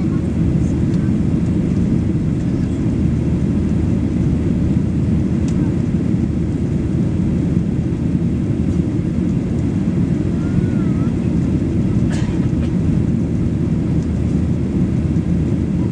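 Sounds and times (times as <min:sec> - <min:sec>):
jet engines rumbling: 0:00.0 - 0:15.9.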